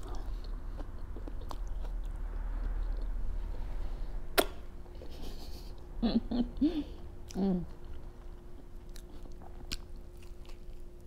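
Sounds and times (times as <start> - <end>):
chewing food: 0.0 - 3.5, 7.2 - 11.0
person humming: 6.0 - 7.8.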